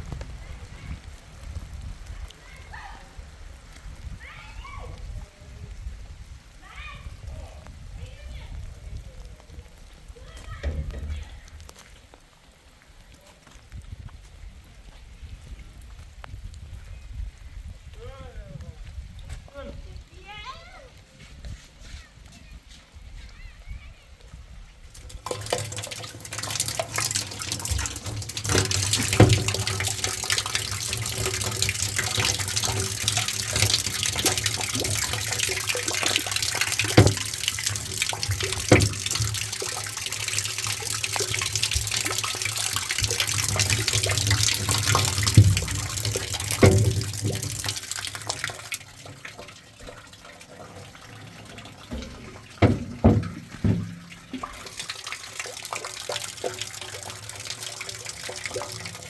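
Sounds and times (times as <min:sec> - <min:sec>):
water rushing: 0:24.9 - 0:59.0
knocks: 0:27.4 - 0:36.2, 0:36.8 - 0:39.7, 0:43.0 - 0:48.4, 0:51.9 - 0:54.6.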